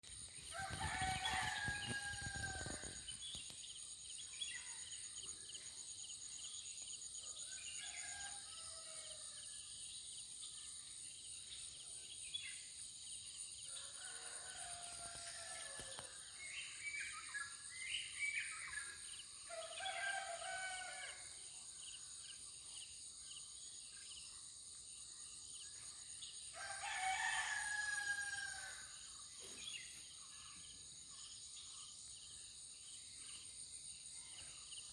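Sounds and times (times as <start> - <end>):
insects droning: 0.0 - 34.9
roosters crowing: 0.5 - 3.0, 19.8 - 21.2, 26.6 - 28.9.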